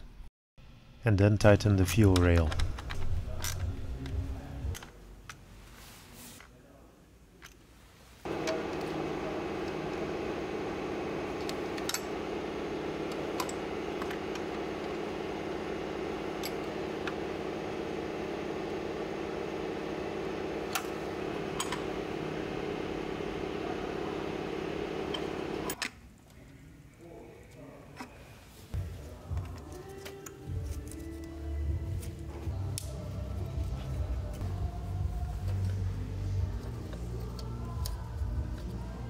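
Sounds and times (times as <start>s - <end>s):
car engine idling: 8.3s - 25.7s.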